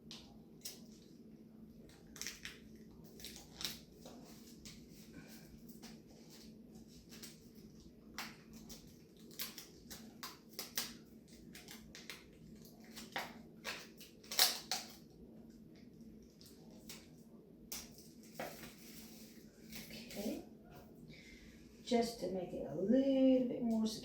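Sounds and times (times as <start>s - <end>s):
tape and paper crinkling: 1.8s - 15.2s, 16.3s - 20.4s.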